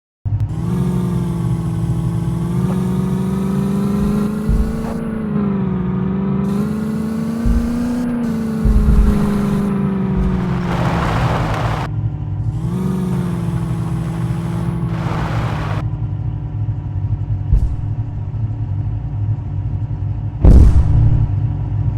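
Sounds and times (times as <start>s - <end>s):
motor humming: 0.4s - 5.7s, 6.4s - 11.9s, 12.5s - 15.8s
low thumps: 0.5s - 5.7s, 6.5s - 11.9s, 12.7s - 15.8s, 17.5s - 18.4s.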